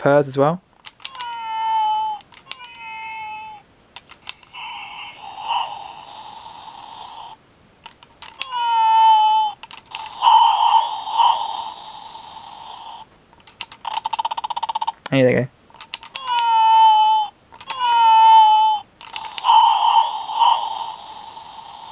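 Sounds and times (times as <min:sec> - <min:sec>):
plastic clicks: 0:00.8 - 0:01.4, 0:02.2 - 0:02.8, 0:04.0 - 0:04.6, 0:07.8 - 0:08.6, 0:09.6 - 0:10.4, 0:13.3 - 0:16.5, 0:17.5 - 0:18.0, 0:19.0 - 0:19.7
synthesized meows: 0:01.0 - 0:03.6, 0:04.4 - 0:06.4, 0:08.4 - 0:11.8, 0:16.1 - 0:21.2.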